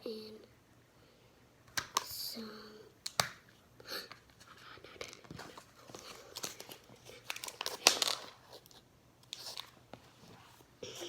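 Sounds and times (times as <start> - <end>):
crinkly rustles: 4.4 - 10.7.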